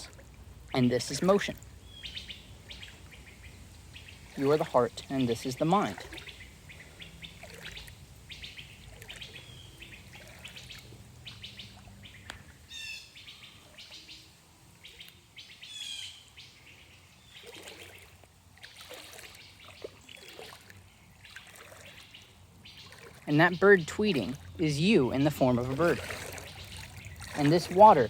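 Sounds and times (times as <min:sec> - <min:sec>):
songbirds chirping: 0:00.0 - 0:28.0
bird trilling: 0:01.9 - 0:04.5, 0:05.2 - 0:16.5.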